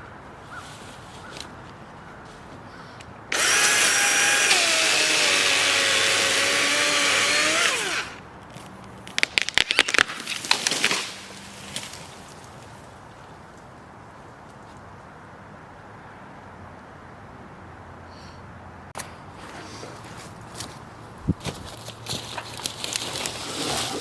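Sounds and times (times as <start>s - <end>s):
sharp cracks and snaps: 3.0s - 12.0s
electric chainsaw whining: 3.3s - 8.2s.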